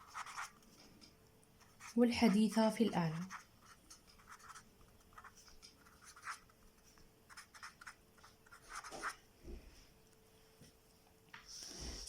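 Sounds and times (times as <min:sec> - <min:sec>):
pen scratching on paper: 0:00.0 - 0:00.5, 0:01.6 - 0:06.5, 0:07.3 - 0:09.2.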